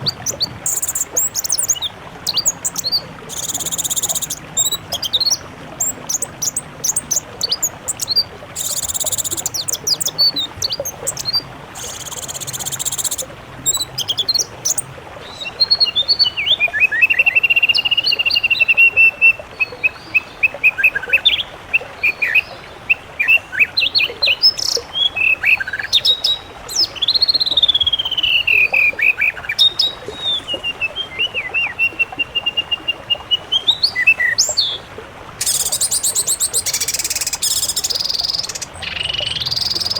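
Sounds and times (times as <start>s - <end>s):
warbling whistled bird trills: 0.0s - 15.9s, 35.4s - 39.9s
songbirds chirping: 0.0s - 16.4s, 33.4s - 39.9s.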